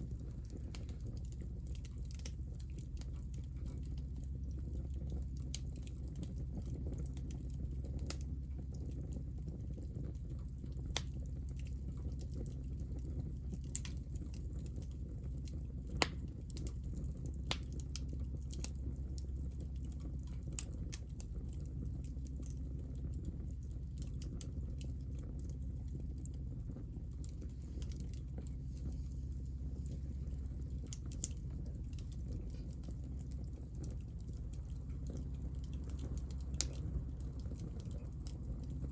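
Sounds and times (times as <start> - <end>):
wood fire crackling and popping: 0.0 - 38.9
low rumble: 20.6 - 38.9.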